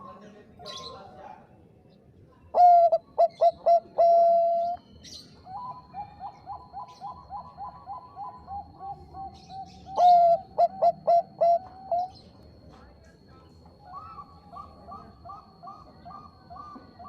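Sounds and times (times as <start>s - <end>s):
faint high whine: 1.4s - 17.0s
dove cooing: 2.4s - 12.3s, 13.8s - 17.0s.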